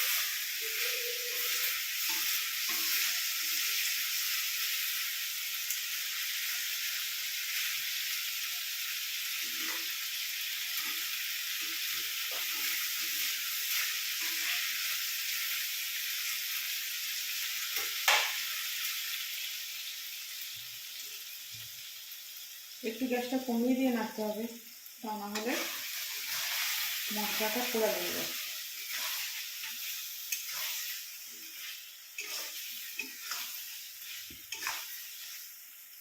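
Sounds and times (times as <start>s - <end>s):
chicken sizzling in oil: 0.0s - 36.0s
spatula scraping and knocking pan: 28.8s - 35.4s.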